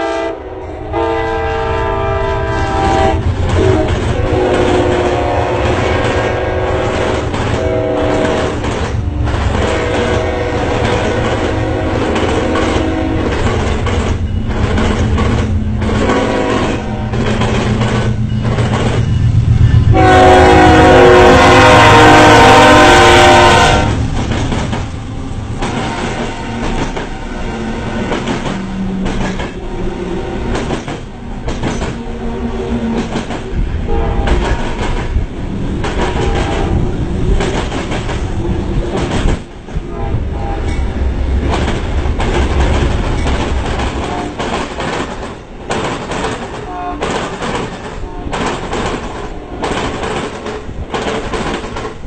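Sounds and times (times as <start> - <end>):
train horn: 0.0 - 13.5, 15.9 - 17.5, 19.6 - 24.2, 25.0 - 30.6, 33.8 - 35.0, 35.9 - 37.4, 39.8 - 41.1, 43.9 - 44.6, 46.5 - 49.8
railcars rumbling: 0.0 - 52.0
wheels clacking over rail joints: 3.2 - 20.0, 23.9 - 27.2, 28.0 - 29.6, 30.4 - 32.1, 32.9 - 39.8, 40.6 - 52.0.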